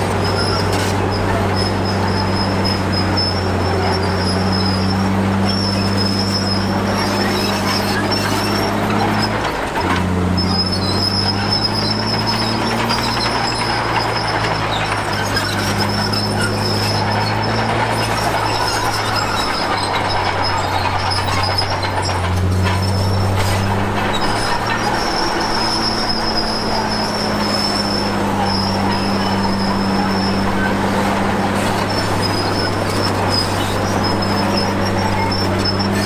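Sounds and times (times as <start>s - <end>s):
bulldozer diesel engine under load: 0.0s - 36.0s
steel tracks squealing: 0.0s - 36.0s.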